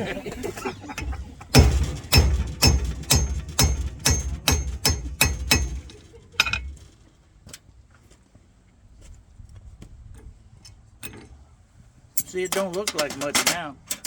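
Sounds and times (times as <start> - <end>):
hammer blows on hot metal: 0.6 - 6.8.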